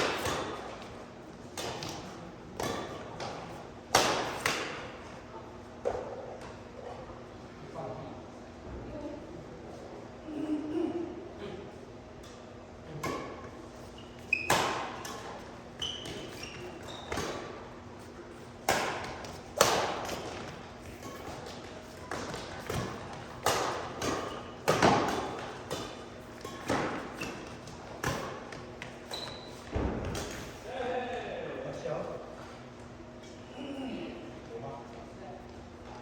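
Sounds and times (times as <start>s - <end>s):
rackets striking shuttlecock: 0.0s - 0.9s, 2.6s - 4.9s, 18.6s - 29.4s
short high squeaks: 29.0s - 29.6s.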